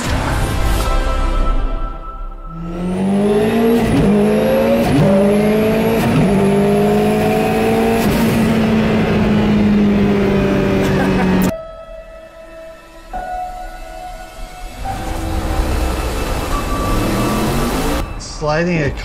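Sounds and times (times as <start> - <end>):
car engine accelerating: 2.5 - 11.5, 14.8 - 19.0.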